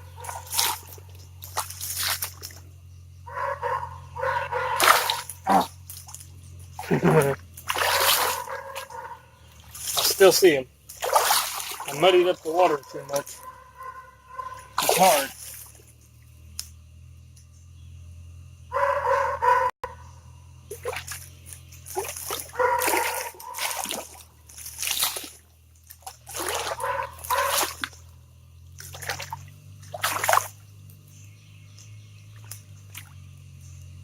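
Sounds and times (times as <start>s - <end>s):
hands splashing in shallow water: 0.2s - 2.6s, 4.8s - 6.2s, 7.6s - 8.6s, 9.6s - 12.1s, 14.8s - 15.9s, 20.7s - 28.0s, 28.8s - 30.6s.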